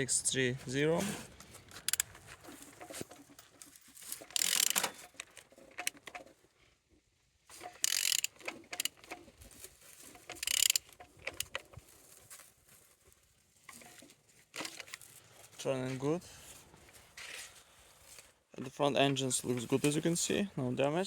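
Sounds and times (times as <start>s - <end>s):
ratchet wrench clicking: 1.8s - 2.1s, 4.2s - 5.2s, 7.6s - 9.0s, 10.3s - 11.6s.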